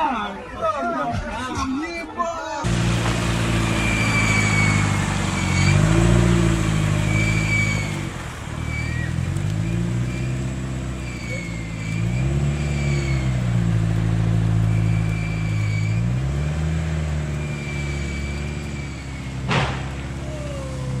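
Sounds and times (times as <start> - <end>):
car engine revving: 2.6 - 21.0
sharp bang: 19.5 - 20.2.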